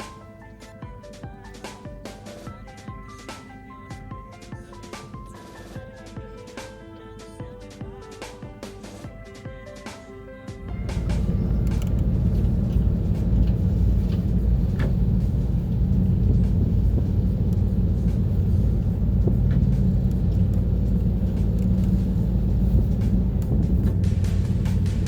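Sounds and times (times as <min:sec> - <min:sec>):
boat engine rumble: 0:09.9 - 0:25.0.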